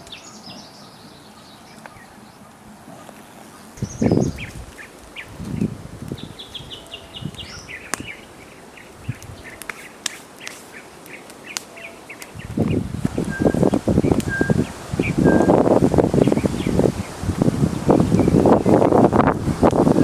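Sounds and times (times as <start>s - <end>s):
rustling: 2.8s - 14.9s.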